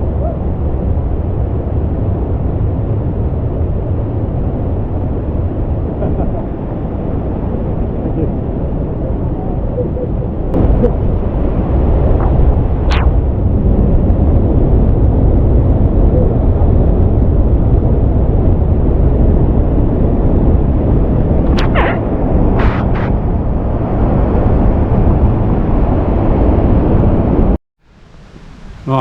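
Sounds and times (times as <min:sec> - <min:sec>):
brief higher sounds: 0:21.5 - 0:23.1.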